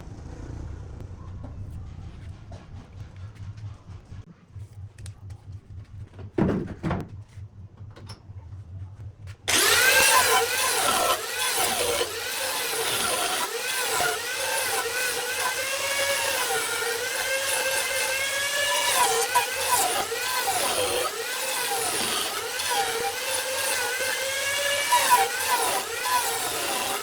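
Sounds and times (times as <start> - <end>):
low hum: 0.0 - 10.4
thump: 6.3 - 7.2
power tool whining on wood: 9.5 - 27.0.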